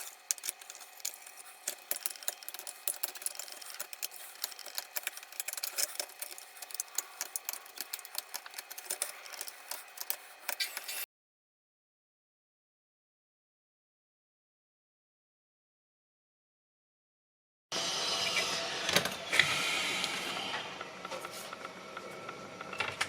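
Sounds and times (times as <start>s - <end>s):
scratching and clicking of hand work: 0.0s - 11.1s.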